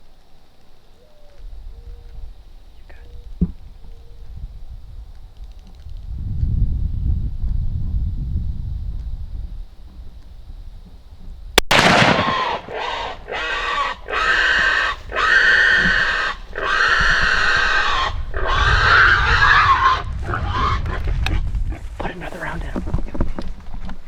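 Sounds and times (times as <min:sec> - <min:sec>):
sharp crack: 0:11.6 - 0:16.3
wild boar squealing: 0:12.1 - 0:21.9.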